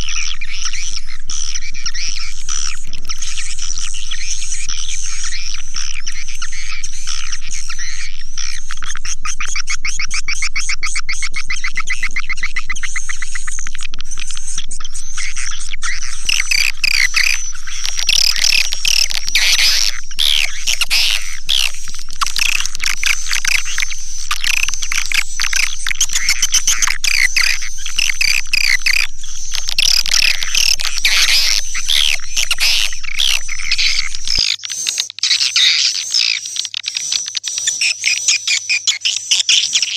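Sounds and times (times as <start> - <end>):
swiftlets twittering: 0.0 - 35.3
steady high tone: 11.5 - 34.4.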